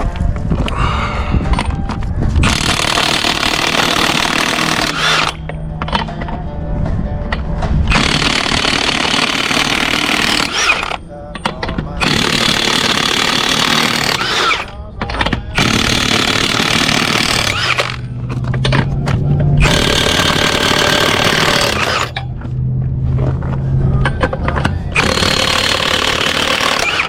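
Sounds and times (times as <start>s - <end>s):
impact wrench hammering: 2.4s - 6.2s, 7.9s - 18.9s, 19.6s - 22.2s, 24.0s - 27.0s.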